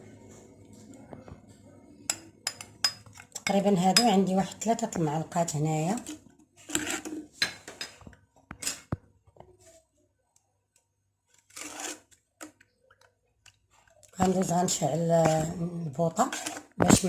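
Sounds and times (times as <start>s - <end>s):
metal spoon scraping a bowl: 6.0s - 7.6s, 11.5s - 12.2s, 15.2s - 17.0s.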